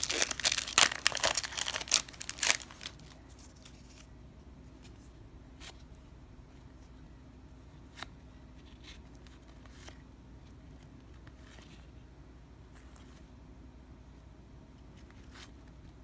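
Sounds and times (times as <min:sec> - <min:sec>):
cardboard cards rustling: 0:00.0 - 0:04.1
low room hum: 0:00.0 - 0:16.0.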